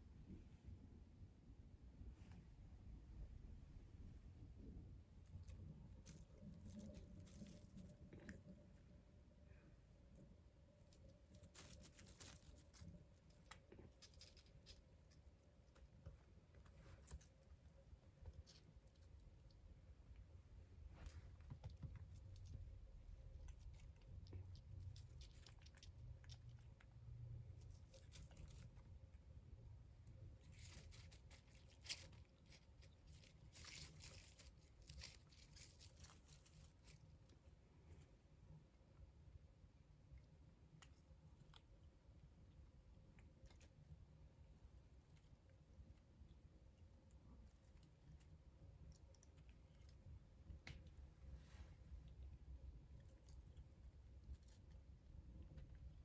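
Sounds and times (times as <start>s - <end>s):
low room hum: 0.0s - 56.0s
faint rustling: 2.0s - 39.0s, 43.0s - 56.0s
kitten tapping and rustling: 20.9s - 29.0s, 30.1s - 37.4s.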